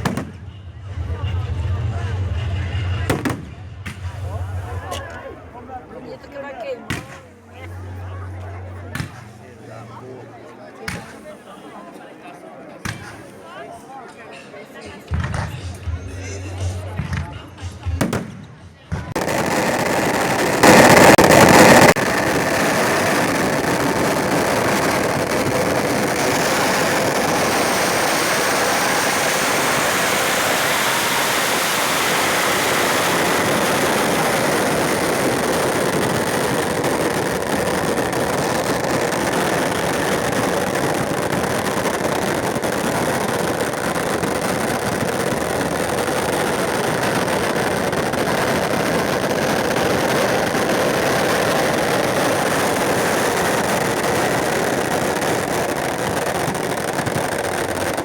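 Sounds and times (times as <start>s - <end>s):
bonfire burning with rushing noise: 19.1s - 58.0s.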